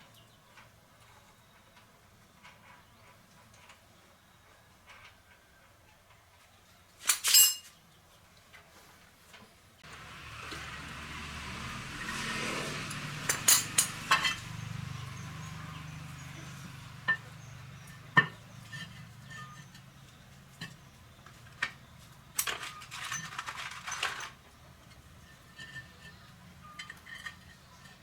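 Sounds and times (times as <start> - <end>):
sharp metallic clinks and knocks: 7.1 - 7.7, 12.9 - 16.2, 16.9 - 21.7, 22.3 - 28.0.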